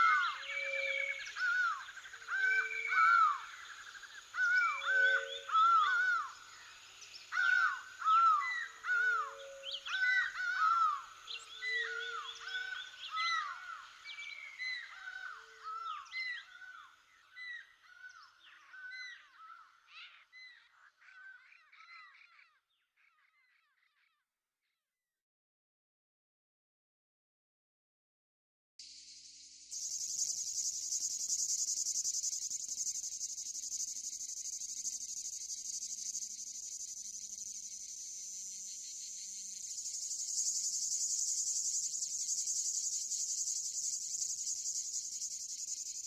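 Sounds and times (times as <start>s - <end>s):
lower flat bird calls: 0.0s - 24.3s.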